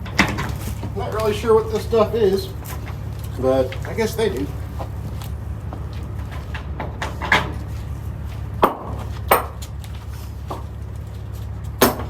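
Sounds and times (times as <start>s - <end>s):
steady low hum: 0.0s - 12.0s
knocks inside empty trailer: 11.8s - 12.0s.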